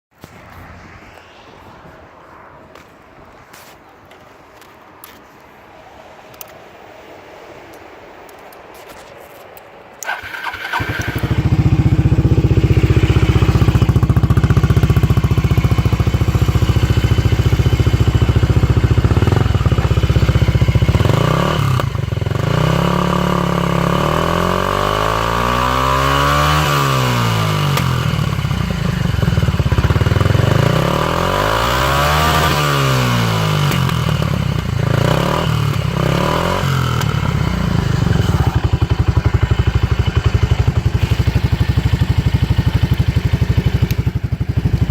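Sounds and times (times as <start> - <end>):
scooter engine idling and revving: 10.0 - 44.9.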